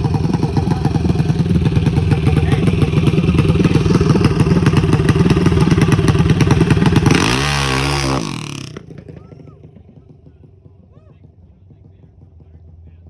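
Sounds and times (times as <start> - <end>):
small engine running: 0.0 - 9.7.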